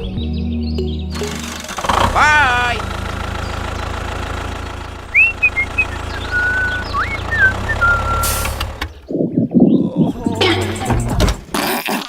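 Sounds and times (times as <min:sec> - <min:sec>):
cartoon engine rumble: 0:01.1 - 0:11.6
raspy sputter: 0:01.2 - 0:09.0
gliding whistle-like chirps: 0:05.1 - 0:08.3.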